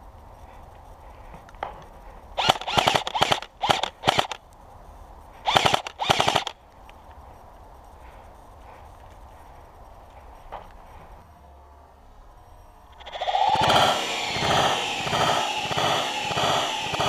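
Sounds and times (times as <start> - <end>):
airsoft gun firing bursts: 2.4 - 4.4, 5.4 - 6.6, 13.0 - 17.0.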